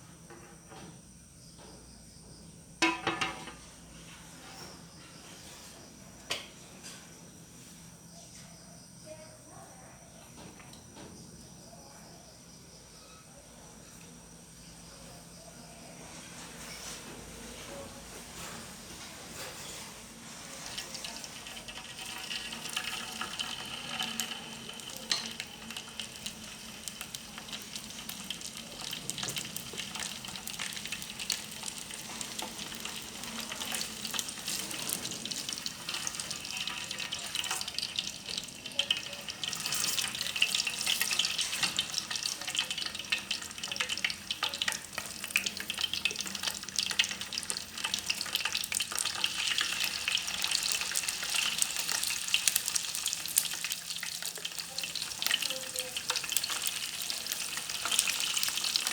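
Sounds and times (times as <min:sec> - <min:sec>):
fish sizzling in hot oil: 0:02.8 - 0:03.6, 0:19.5 - 0:58.9.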